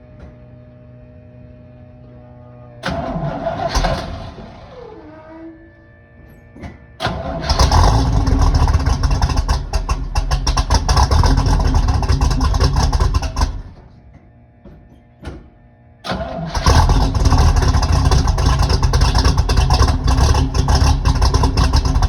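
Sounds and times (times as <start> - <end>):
car engine starting and running loud: 2.8 - 5.4, 7.0 - 13.9, 16.0 - 22.0.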